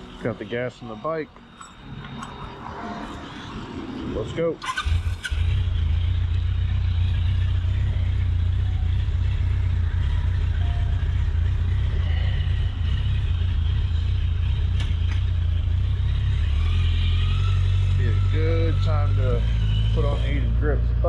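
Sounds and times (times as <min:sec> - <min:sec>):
motorcycle engine running: 0:02.3 - 0:21.0.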